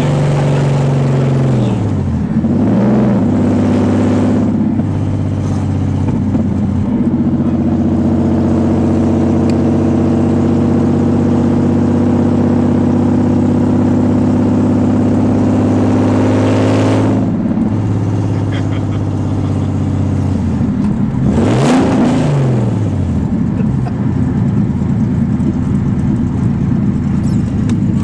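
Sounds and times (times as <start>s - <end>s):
car engine running without exhaust: 0.0s - 28.0s.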